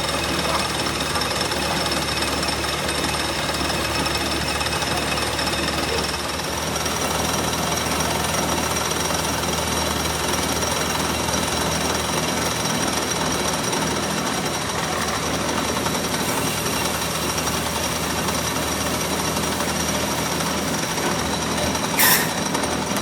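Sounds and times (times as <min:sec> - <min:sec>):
metalworking machinery: 0:00.0 - 0:23.0.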